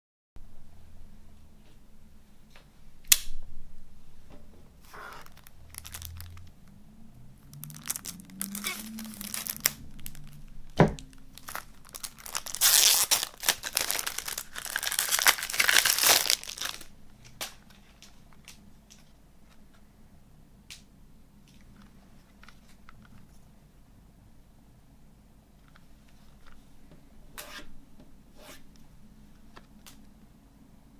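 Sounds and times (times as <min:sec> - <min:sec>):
plastic wrapping tearing and crinkling: 0:04.8 - 0:06.5, 0:07.5 - 0:18.6.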